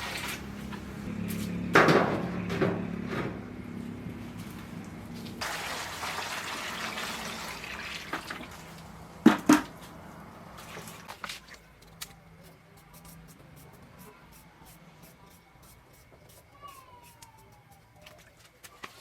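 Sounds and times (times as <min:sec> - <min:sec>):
water running: 0:04.7 - 0:09.0.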